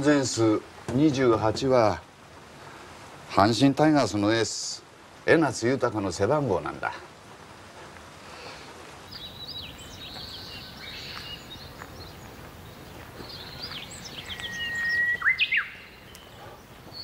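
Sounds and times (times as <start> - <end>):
faint outdoor background: 0.0 - 17.0
songbirds chirping and twittering: 0.0 - 17.0
bird whistling long note: 14.2 - 16.0.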